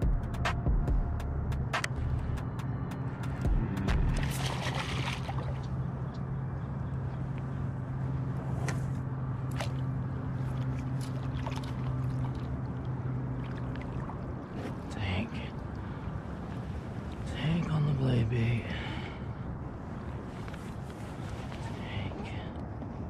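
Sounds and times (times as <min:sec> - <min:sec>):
low motor hum: 0:00.0 - 0:23.0.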